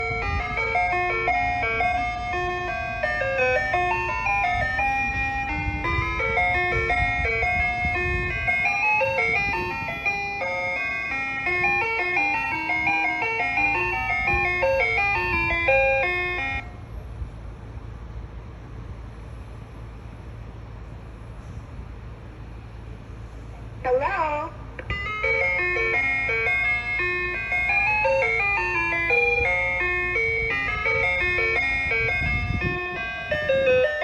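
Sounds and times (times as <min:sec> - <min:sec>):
ice cream truck chime melody: 0:00.0 - 0:17.0, 0:23.9 - 0:34.0.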